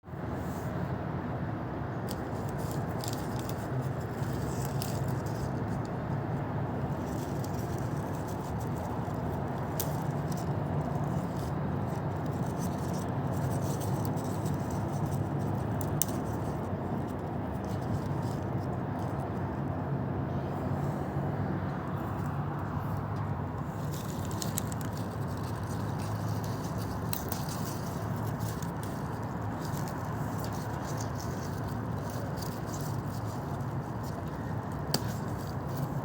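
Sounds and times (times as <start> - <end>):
low background noise: 0.1 - 36.0
faint clicks and scrapes: 6.8 - 19.4, 22.0 - 36.0.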